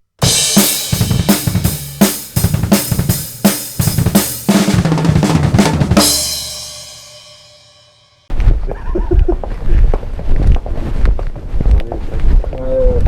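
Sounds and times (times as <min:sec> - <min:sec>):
drum kit playing fast beat: 0:00.2 - 0:07.9
cymbal crash: 0:00.2 - 0:08.3.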